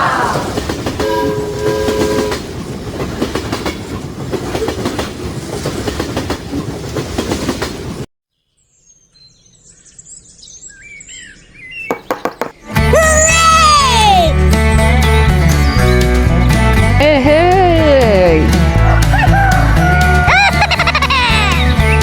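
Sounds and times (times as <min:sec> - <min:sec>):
train wheels clattering: 0:00.4 - 0:08.0
train horn blast: 0:01.0 - 0:02.5.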